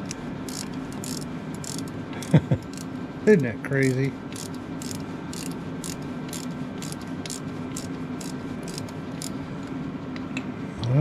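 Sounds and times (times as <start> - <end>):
ratchet wrench clicking: 0.0 - 1.9, 2.6 - 2.9, 3.8 - 9.3
steady low hum: 0.0 - 11.0.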